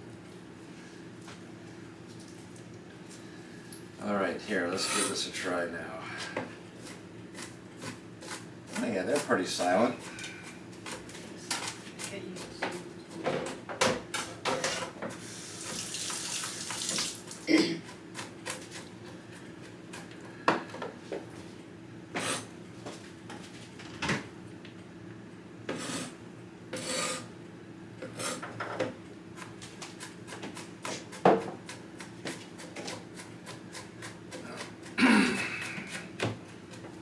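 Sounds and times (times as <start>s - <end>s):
knife chopping on cutting board: 29.4s - 35.0s.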